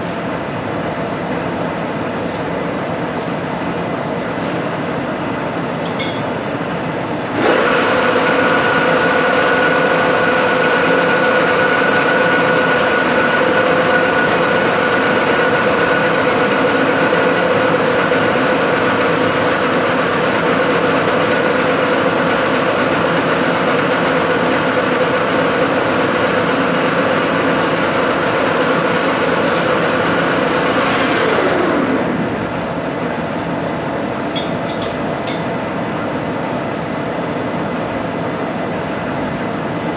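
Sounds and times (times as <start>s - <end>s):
workshop noise: 5.7s - 26.0s, 28.5s - 30.8s, 34.2s - 35.9s
electric motor whining: 7.8s - 24.8s.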